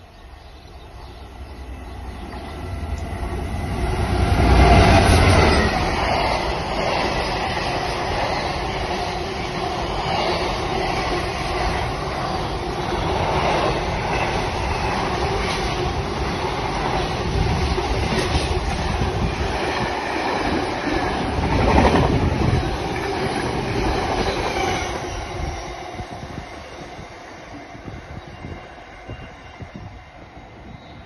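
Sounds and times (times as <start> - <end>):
locomotive passing: 0.2 - 26.6.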